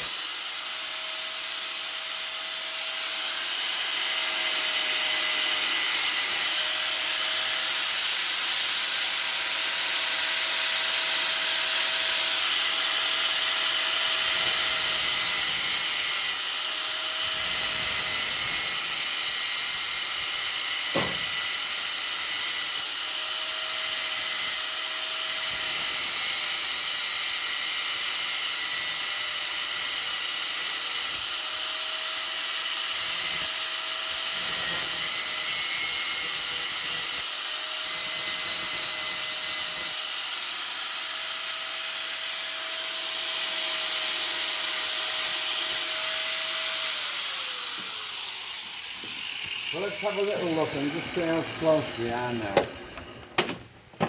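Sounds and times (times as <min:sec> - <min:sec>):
grinder wheel hissing on metal: 0:00.0 - 0:54.0
sharp knock: 0:20.9 - 0:21.4.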